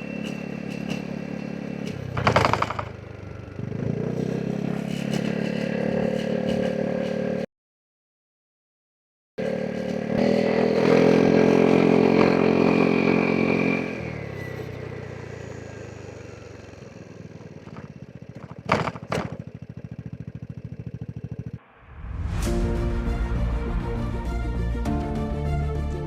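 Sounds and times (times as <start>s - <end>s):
scooter engine revving: 0.0s - 7.4s, 9.4s - 21.6s.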